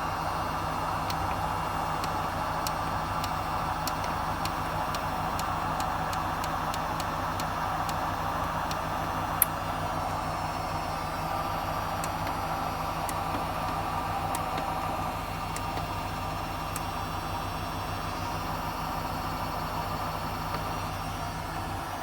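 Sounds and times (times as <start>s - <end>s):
tumble dryer drum humming: 0.0s - 22.0s
light irregular ticks: 1.0s - 9.5s.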